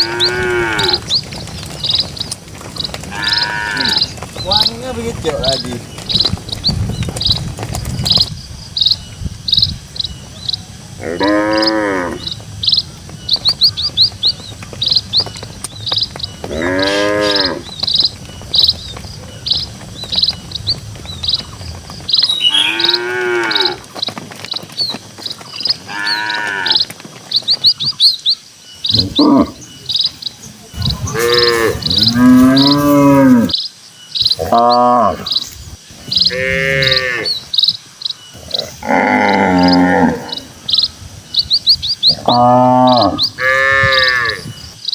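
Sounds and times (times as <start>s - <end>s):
cattle mooing: 0.0s - 1.1s, 3.1s - 4.1s, 11.0s - 12.3s, 16.5s - 17.7s, 22.3s - 23.8s, 25.9s - 26.8s, 28.9s - 29.6s, 30.8s - 33.5s, 36.2s - 37.4s, 38.4s - 40.4s, 42.2s - 44.6s
high chirping: 19.4s - 24.0s, 25.3s - 44.9s.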